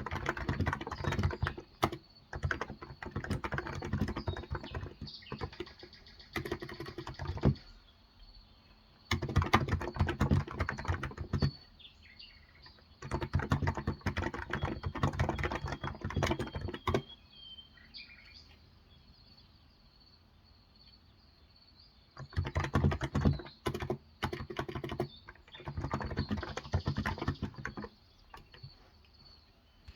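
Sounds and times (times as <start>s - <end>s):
keyboard typing: 0.0s - 7.7s, 9.1s - 11.7s, 12.6s - 17.1s, 22.2s - 28.9s
faint bird chirps: 0.0s - 29.9s.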